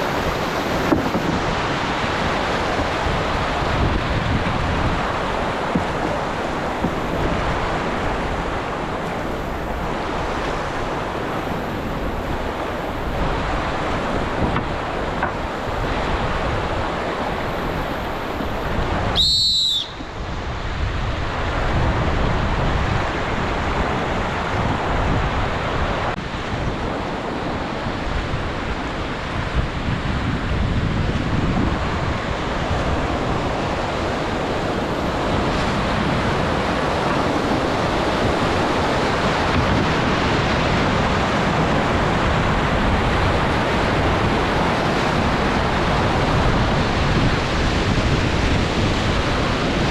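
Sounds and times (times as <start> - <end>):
river water rushing: 0.0 - 49.9
high whistle-like tone: 19.2 - 20.1.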